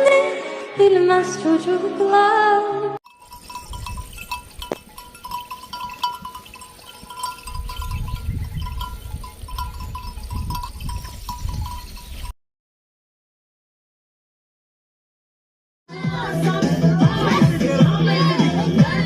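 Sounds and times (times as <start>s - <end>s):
animal bells clinking: 3.0s - 12.4s.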